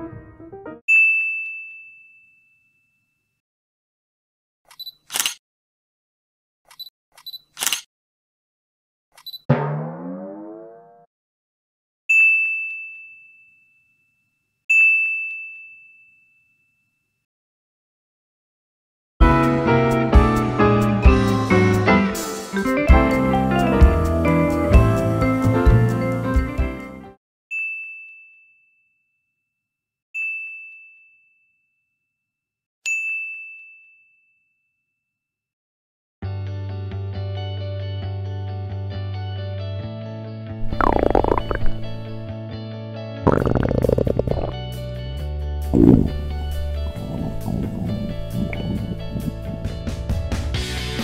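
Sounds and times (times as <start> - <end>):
background music: 0.0 - 0.8, 19.3 - 27.1
bell-like ding: 0.9 - 2.4.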